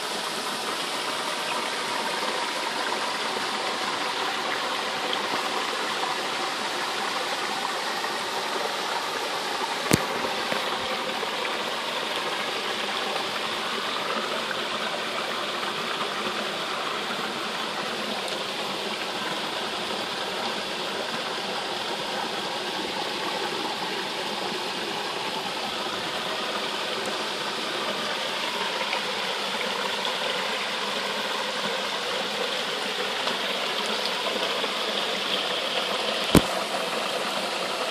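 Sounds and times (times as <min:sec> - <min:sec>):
running water rushing: 0:00.0 - 0:37.9.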